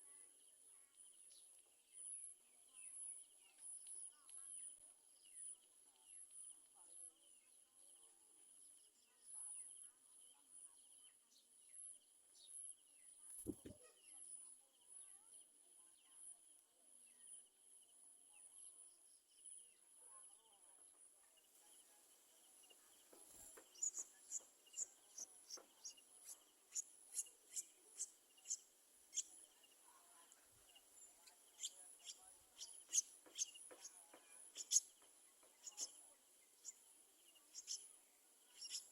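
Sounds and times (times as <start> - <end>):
soft thump: 13.4 - 13.8.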